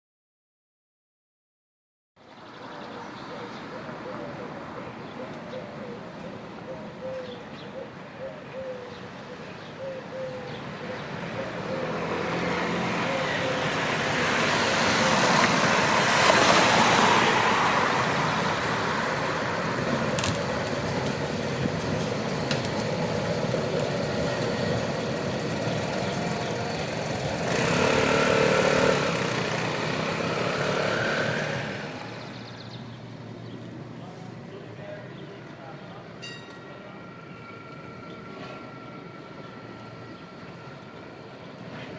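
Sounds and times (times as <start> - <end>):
tram running past: 11.8 - 34.0, 35.4 - 41.9.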